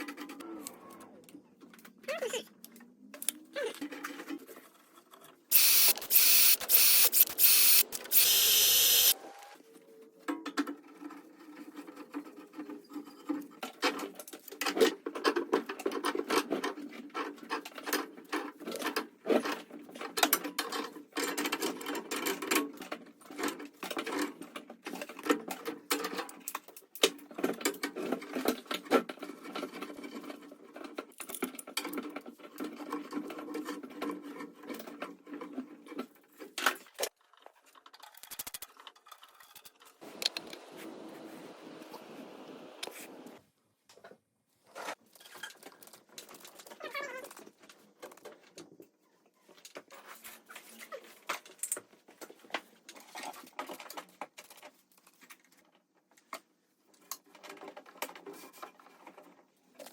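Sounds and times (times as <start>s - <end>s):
fast rattling mechanical clicking: 5.5s - 9.2s.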